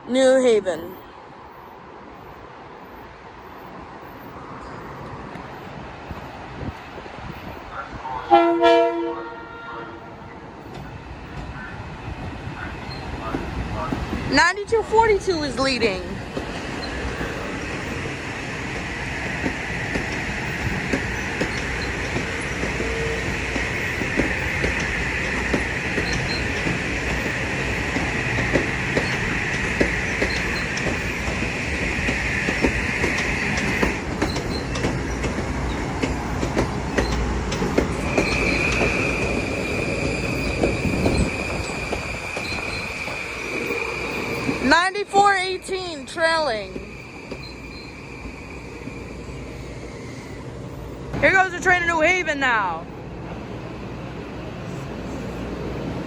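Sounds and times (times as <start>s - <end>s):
train wheels squealing on rails: 0.9s - 8.2s, 10.1s - 52.2s
wheels clicking over rail joints: 12.7s - 49.0s.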